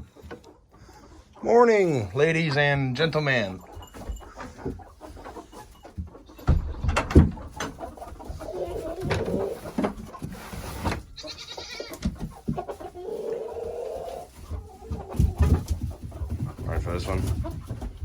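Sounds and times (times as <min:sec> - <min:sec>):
chickens calling: 0:00.0 - 0:18.0
knocks and clatters: 0:03.7 - 0:08.0.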